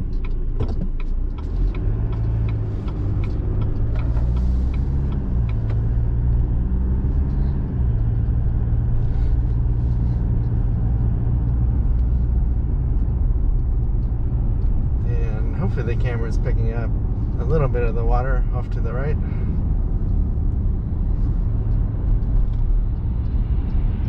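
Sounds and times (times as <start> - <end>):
truck engine and tyre rumble: 0.0 - 24.0
turn signal ticking: 0.0 - 24.0.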